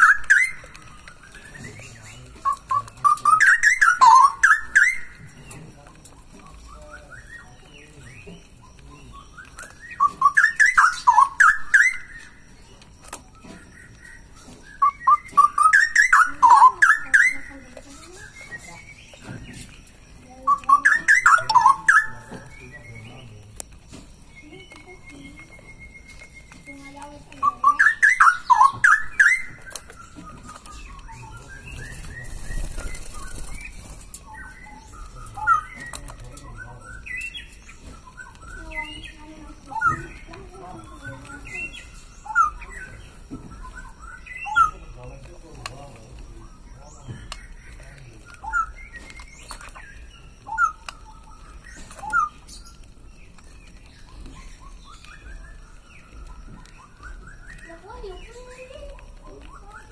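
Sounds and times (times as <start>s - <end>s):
bird chirps: 0.0s - 59.9s
bulbul singing whistled phrases: 0.0s - 59.9s.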